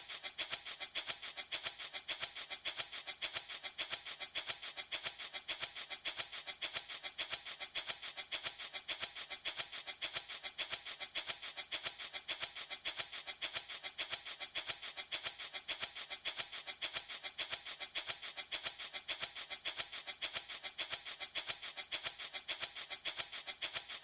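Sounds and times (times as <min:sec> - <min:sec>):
baby rattle shaken: 0:00.0 - 0:24.0.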